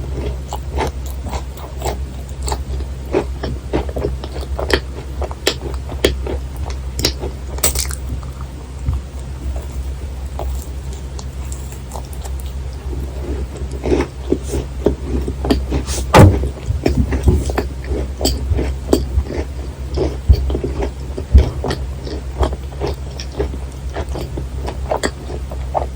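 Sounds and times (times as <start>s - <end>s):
steady low hum: 0.0s - 25.9s
close chewing with wet mouth clicks: 0.1s - 9.8s, 10.4s - 15.9s, 16.8s - 25.9s
loud bite: 7.0s - 8.5s.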